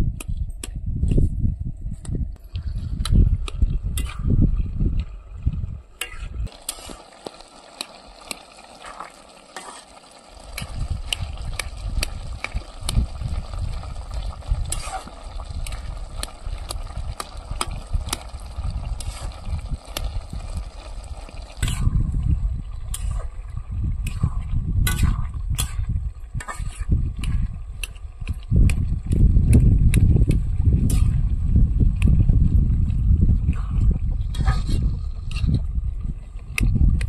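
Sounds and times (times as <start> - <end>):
low rumble: 0.8 - 6.5, 10.4 - 37.0
food sizzling in a pot: 6.5 - 22.0.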